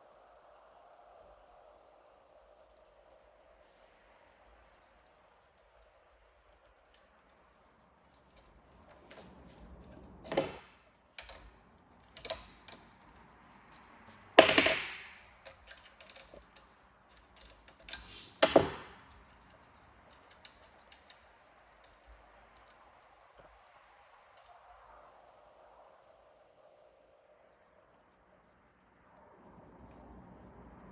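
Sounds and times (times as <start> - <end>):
hard parts clicking and knocking: 5.0 - 24.5.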